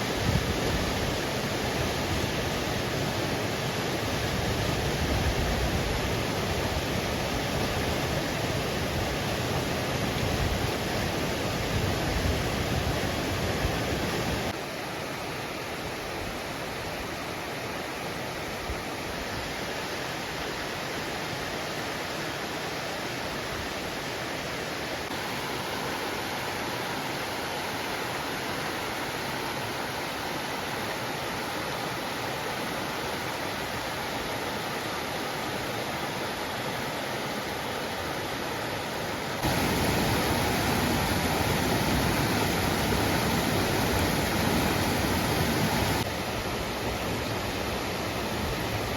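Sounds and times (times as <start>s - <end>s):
waterfall roaring: 16.7s - 48.9s.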